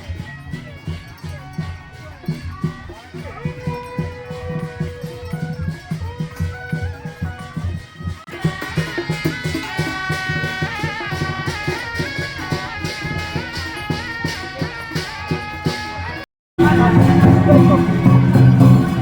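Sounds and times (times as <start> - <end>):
steady drum beats: 0.0 - 19.0
shrill reed-wind melody: 16.6 - 19.0.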